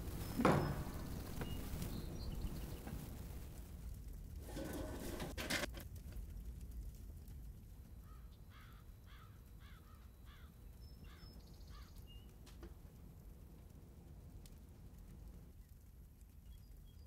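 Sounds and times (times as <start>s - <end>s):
bird calling: 0.0s - 2.9s
faint outdoor background noise: 0.0s - 17.0s.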